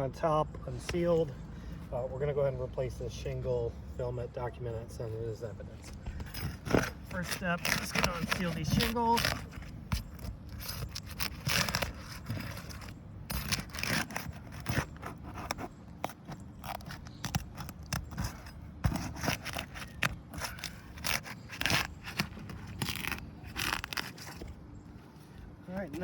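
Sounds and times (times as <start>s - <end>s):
roof shingles scraping and crackling: 5.9s - 26.0s.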